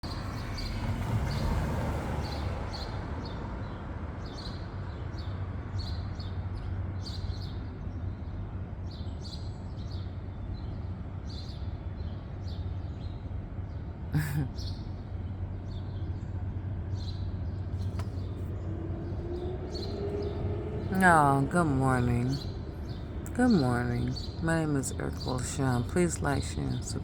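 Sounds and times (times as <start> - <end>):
small birds chirping: 2.3 - 27.0
steady low rumble: 15.0 - 27.0.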